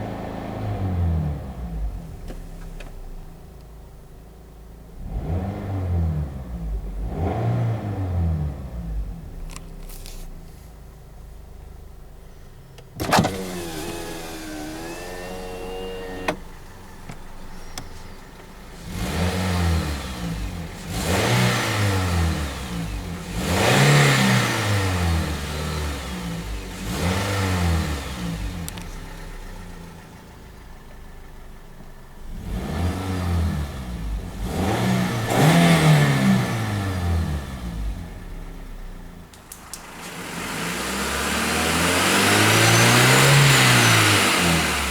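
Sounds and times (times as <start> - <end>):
car engine revving: 0.0 - 3.3, 4.9 - 44.9.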